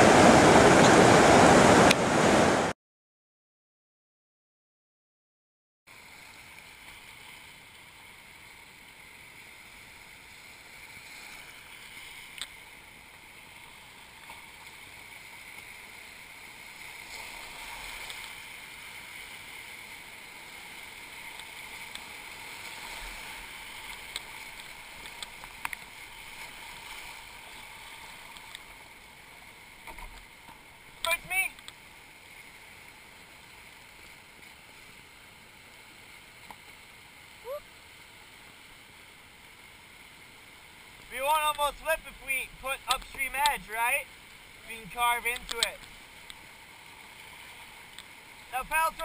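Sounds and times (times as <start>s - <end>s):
river water rushing through rapids: 0.0s - 2.7s.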